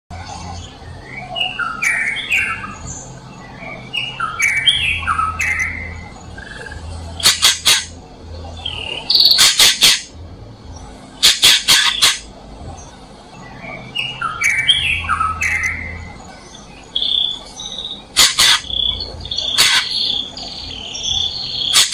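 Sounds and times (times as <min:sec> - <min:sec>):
harsh bird calls: 0:00.1 - 0:10.2, 0:10.8 - 0:21.9
bird whistling notes: 0:13.4 - 0:21.9.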